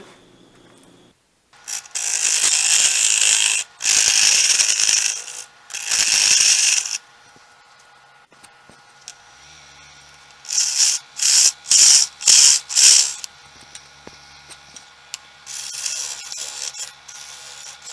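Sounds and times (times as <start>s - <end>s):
wood lathe running: 1.6s - 7.0s, 9.4s - 17.9s
lathe tool hissing cuts into wood: 1.7s - 7.0s, 9.4s - 13.3s.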